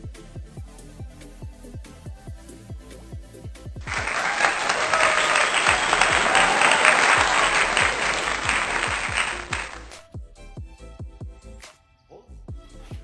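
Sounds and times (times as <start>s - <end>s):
background music with beat: 0.0s - 13.0s
crowd applauding: 3.8s - 10.1s.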